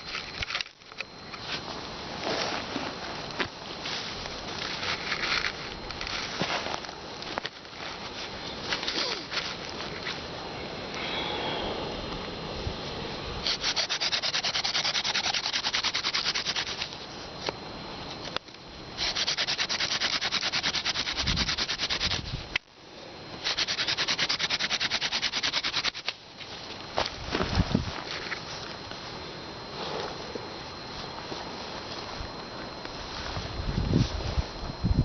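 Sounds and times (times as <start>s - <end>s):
hand drill friction rubbing: 13.4s - 16.9s, 19.0s - 22.4s, 23.4s - 26.1s.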